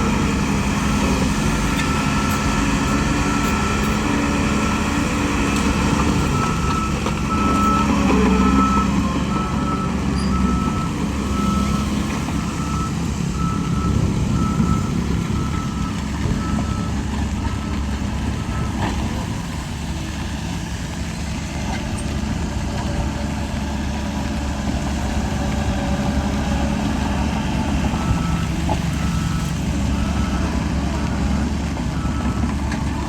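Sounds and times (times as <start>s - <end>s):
diesel engines rumbling: 0.0s - 33.0s
reversing alarm beeping: 5.8s - 17.8s.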